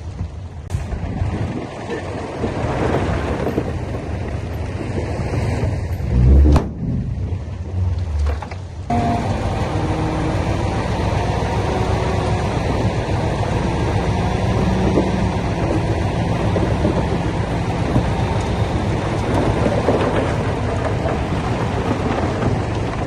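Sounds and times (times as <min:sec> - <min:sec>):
heavy low thud: 0:06.1 - 0:08.5
heavy machinery running: 0:08.8 - 0:23.0.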